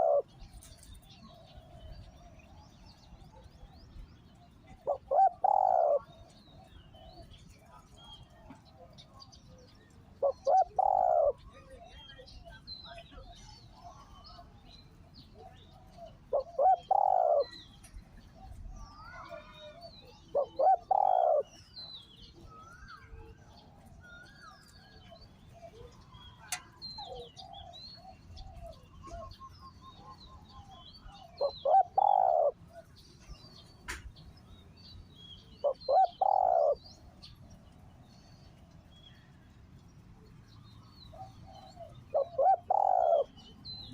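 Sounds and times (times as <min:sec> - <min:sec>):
dove cooing: 0:00.0 - 0:12.0, 0:15.3 - 0:21.7, 0:22.4 - 0:33.4, 0:35.5 - 0:37.4, 0:41.1 - 0:43.9
small birds chirping: 0:00.0 - 0:43.9.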